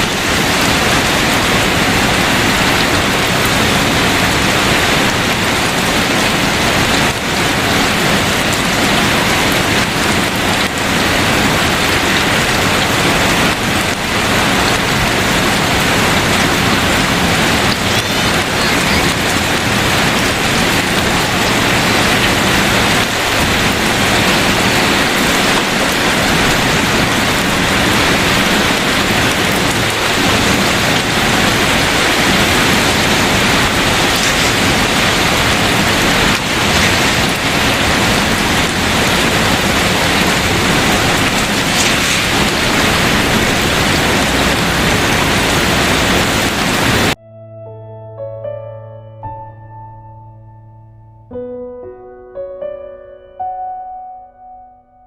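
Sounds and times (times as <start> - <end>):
heavy rain on hard surfaces: 0.0 - 47.2.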